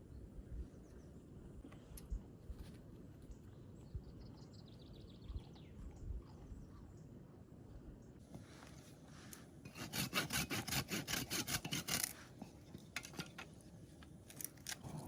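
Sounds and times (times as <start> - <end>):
hand saw cutting wood: 9.7 - 12.3.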